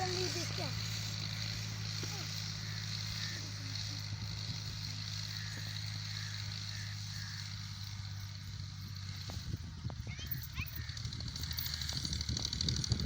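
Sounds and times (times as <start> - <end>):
tractor diesel engine droning: 0.0 - 13.0.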